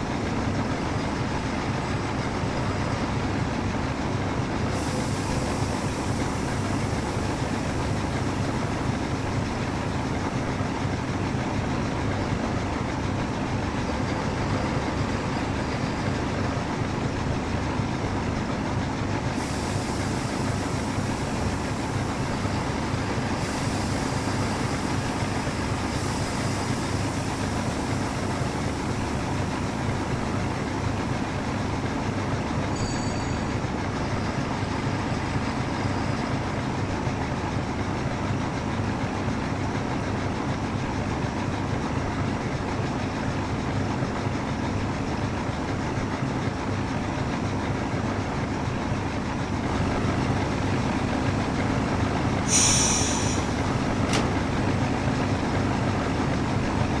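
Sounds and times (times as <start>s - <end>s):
train rumbling on rails: 0.0s - 57.0s
high wheel squeal: 32.6s - 33.9s, 52.4s - 55.0s.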